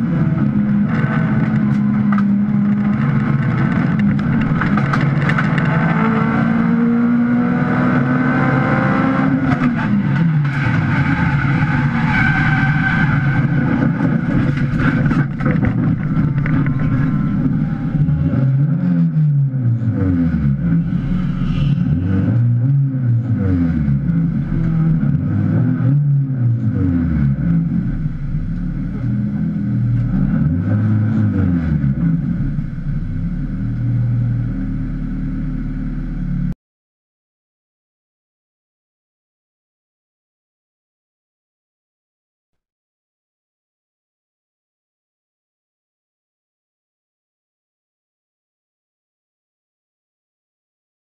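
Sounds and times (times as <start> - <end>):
car engine revving: 0.0 - 36.6.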